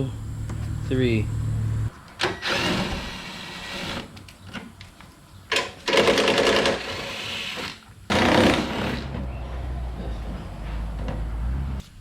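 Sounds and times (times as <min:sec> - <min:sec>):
cordless power tool whirring: 0:05.9 - 0:09.3.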